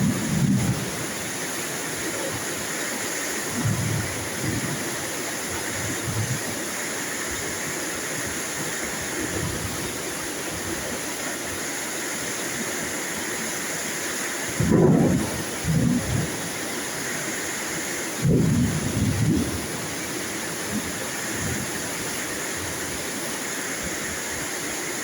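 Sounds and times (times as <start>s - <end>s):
low rumbles of thunder: 0.0s - 1.0s, 3.6s - 4.8s, 14.6s - 16.4s, 18.2s - 19.7s
steady rain falling: 0.0s - 25.0s.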